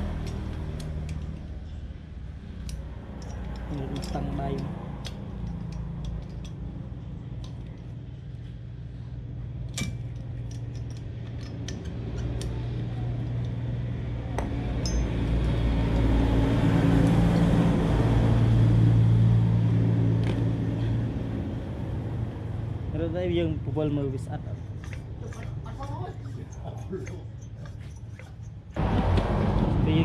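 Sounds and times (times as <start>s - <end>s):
light metallic clinks: 2.6s - 6.7s, 14.8s - 15.4s
low engine hum: 11.1s - 30.0s.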